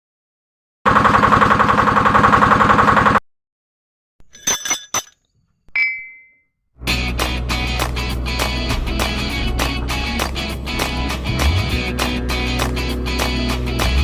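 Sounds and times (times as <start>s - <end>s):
sharp clinks: 4.2s - 5.2s, 5.8s - 6.4s
ringing ding: 5.8s - 6.4s.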